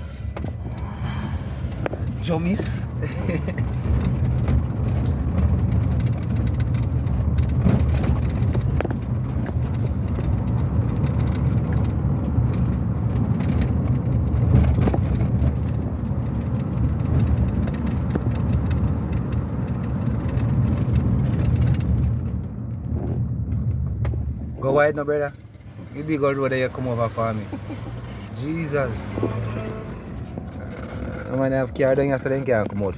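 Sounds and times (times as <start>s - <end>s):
car engine and tyre rumble: 0.0s - 32.9s.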